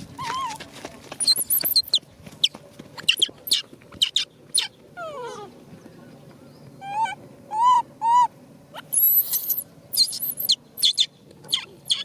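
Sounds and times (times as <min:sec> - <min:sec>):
monkey squealing and squeaking: 0:01.2 - 0:02.0, 0:03.0 - 0:04.7, 0:06.8 - 0:12.0
young monkey whimpering: 0:03.0 - 0:05.6, 0:06.8 - 0:12.0.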